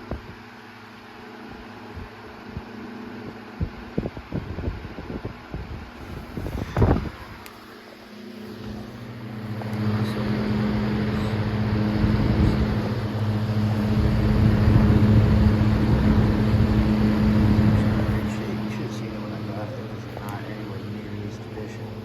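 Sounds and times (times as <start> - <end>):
table fan running: 0.0 - 22.0.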